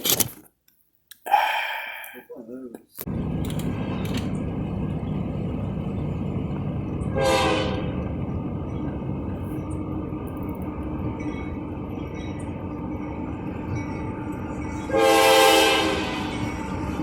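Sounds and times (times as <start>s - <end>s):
vehicle rumble from inside cab: 3.1s - 13.2s.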